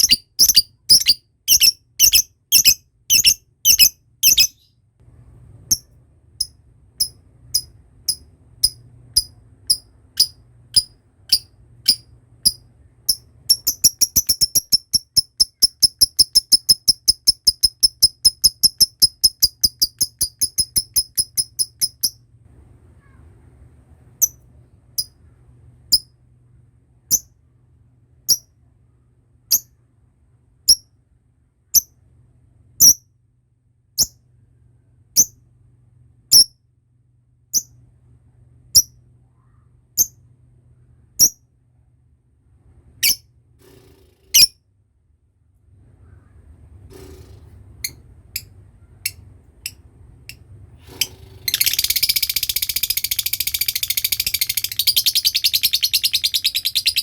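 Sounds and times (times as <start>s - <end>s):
lovebird chattering trill: 0.0s - 4.7s, 6.4s - 22.1s, 51.5s - 57.0s.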